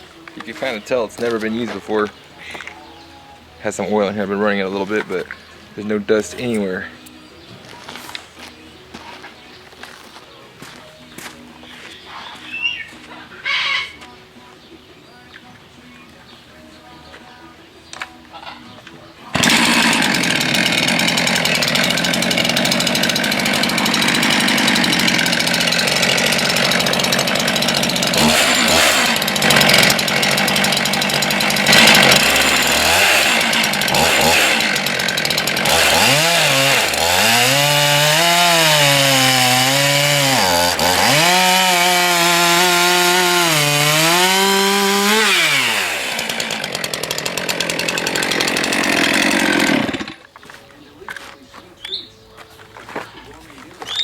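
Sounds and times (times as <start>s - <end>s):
chainsaw cutting wood: 19.3s - 50.3s.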